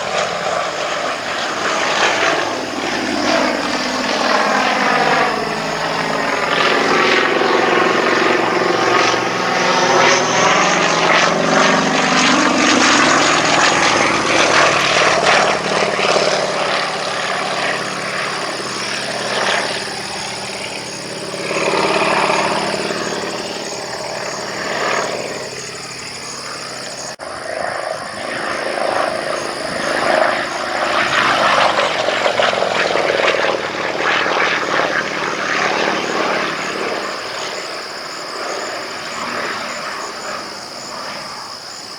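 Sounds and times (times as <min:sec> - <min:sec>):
biplane radial engine and propeller: 0:00.0 - 0:41.9.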